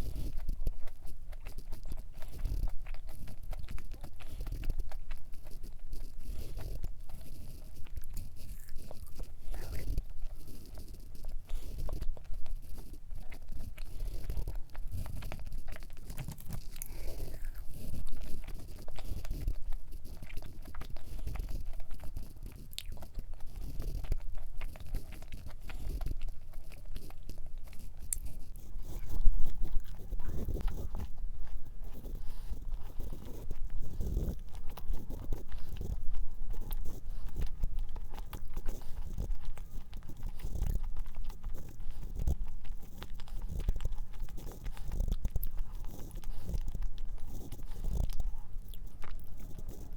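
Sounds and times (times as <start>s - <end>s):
chewing cookie: 0.0s - 49.9s.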